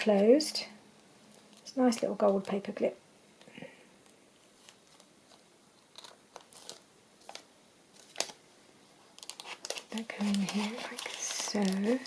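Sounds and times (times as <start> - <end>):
paper crinkling: 4.3 - 8.4, 9.0 - 12.0
paper rustling: 4.4 - 8.4, 9.0 - 12.0.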